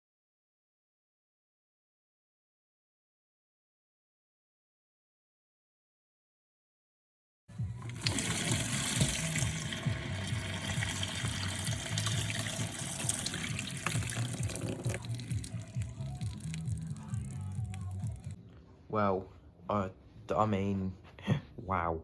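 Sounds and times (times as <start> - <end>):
water gushing and gurgling: 7.6 - 18.4.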